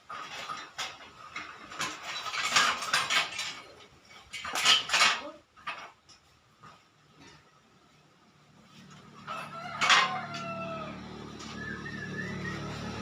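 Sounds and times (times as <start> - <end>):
metal objects clattering: 0.0 - 7.6, 9.0 - 10.6.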